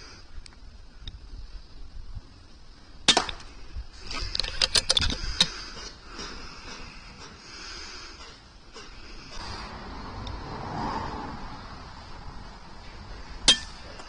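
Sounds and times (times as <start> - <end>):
sharp clicks and rattles: 4.0 - 7.4.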